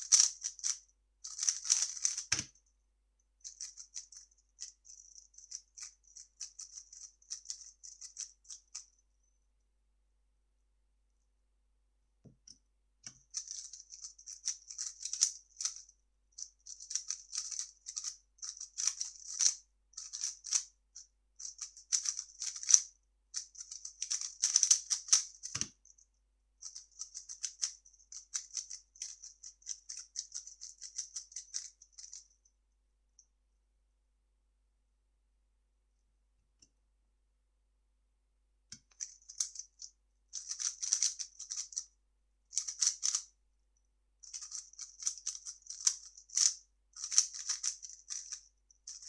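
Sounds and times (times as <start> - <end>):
plastic cube layers clicking: 0.0 - 2.5, 23.4 - 25.8, 40.4 - 41.8, 42.6 - 43.2, 44.3 - 49.0.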